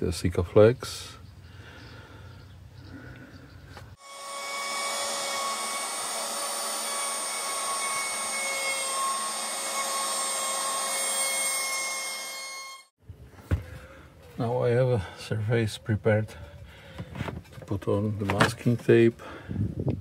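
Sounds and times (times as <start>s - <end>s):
electric power tool whining: 4.0s - 12.9s.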